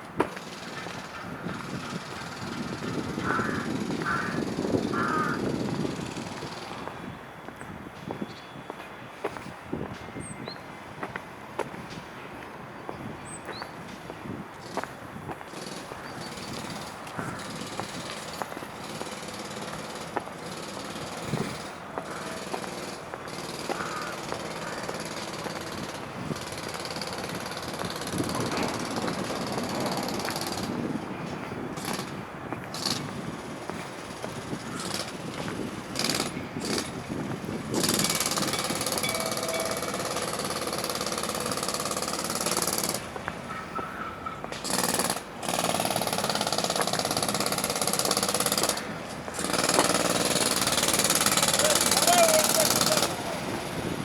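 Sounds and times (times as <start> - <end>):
jackhammer breaking concrete: 37.7 - 43.0, 44.6 - 53.6.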